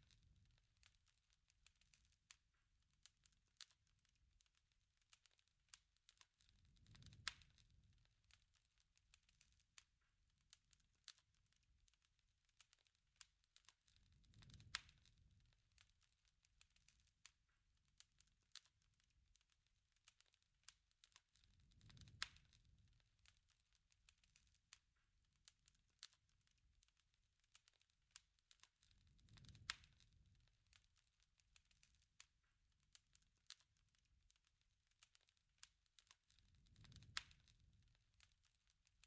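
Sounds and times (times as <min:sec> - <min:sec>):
fire popping: 0:00.0 - 0:39.0
wood fire crackling: 0:00.0 - 0:39.0
low rush of flame: 0:06.5 - 0:07.9, 0:14.0 - 0:15.6, 0:21.5 - 0:23.3, 0:28.9 - 0:30.8, 0:36.3 - 0:38.0.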